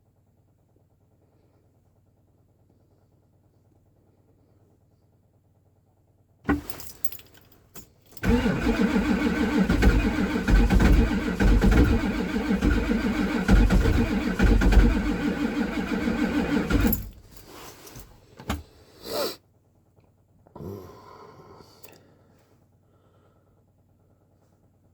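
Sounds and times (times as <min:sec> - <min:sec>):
diesel engine cranking: 0:06.5 - 0:07.4, 0:08.1 - 0:18.7.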